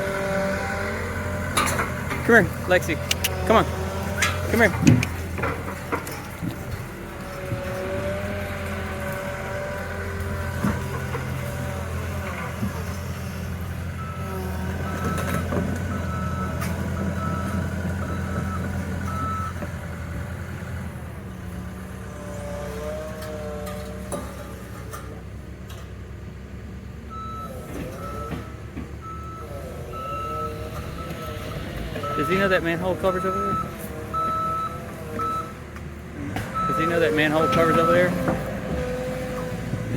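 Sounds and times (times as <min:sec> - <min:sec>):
excavator diesel engine: 0:00.0 - 0:39.9
reversing alarm beeping: 0:14.0 - 0:19.6, 0:27.1 - 0:31.4, 0:32.0 - 0:35.5, 0:36.6 - 0:38.3.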